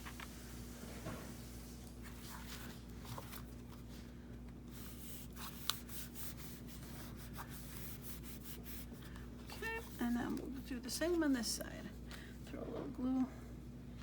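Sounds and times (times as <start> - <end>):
paper rustling and rubbing: 1.6 - 11.4.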